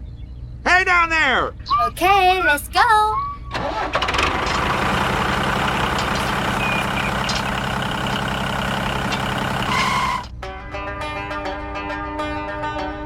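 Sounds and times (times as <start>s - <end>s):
tractor engine running: 3.5s - 10.3s.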